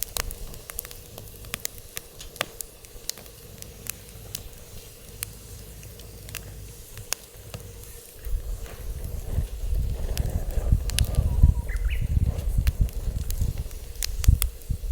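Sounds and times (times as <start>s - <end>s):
wood fire crackling and popping: 0.0s - 14.9s
wind rumble on microphone: 7.5s - 14.9s.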